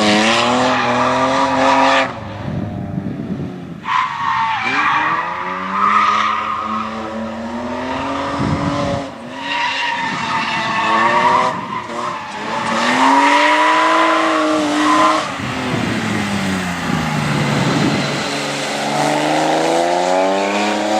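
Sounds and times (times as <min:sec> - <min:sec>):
car engine revving: 0:10.7 - 0:20.9.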